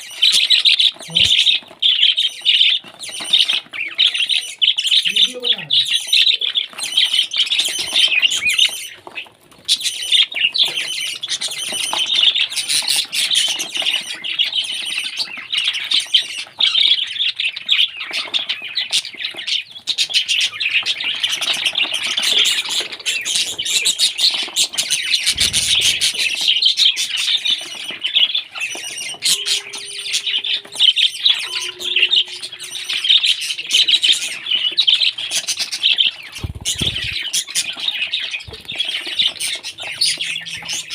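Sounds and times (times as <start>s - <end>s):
parrot chattering and chirping: 20.1s - 40.9s.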